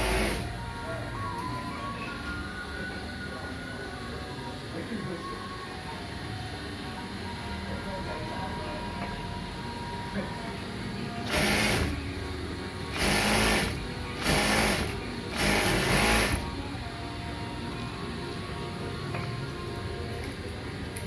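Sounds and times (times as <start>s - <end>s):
sewing machine bursts: 0.0s - 0.5s, 11.2s - 12.0s, 12.9s - 16.4s.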